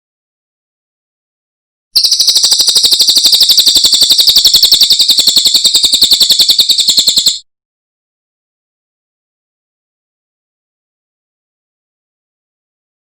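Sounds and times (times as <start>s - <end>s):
bird high-pitched trill: 2.0s - 7.4s.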